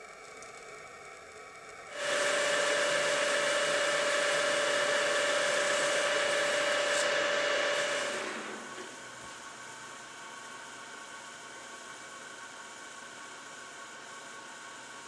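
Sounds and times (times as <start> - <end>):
machine whirring with whine: 1.9 - 9.3.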